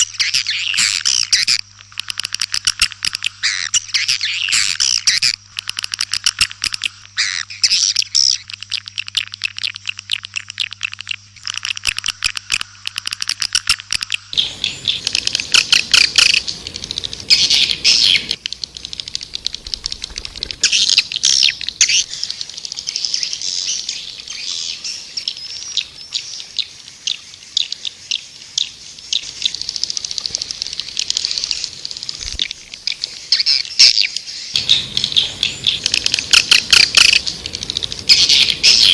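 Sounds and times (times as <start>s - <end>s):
swiftlets twittering: 0.0s - 24.4s
low hum: 14.1s - 24.2s.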